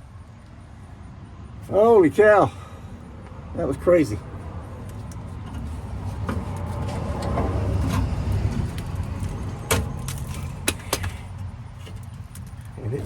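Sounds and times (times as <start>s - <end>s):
low rumbling handling noise: 4.7s - 13.0s.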